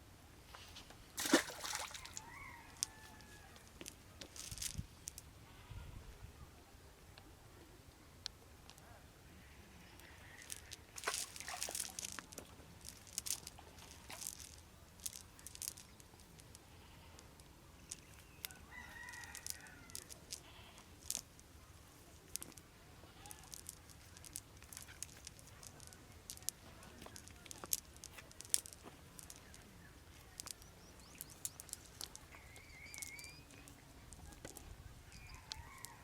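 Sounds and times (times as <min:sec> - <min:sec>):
rustling: 0:00.5 - 0:05.3, 0:10.0 - 0:36.0
rooster crowing: 0:01.9 - 0:03.6, 0:35.2 - 0:36.0.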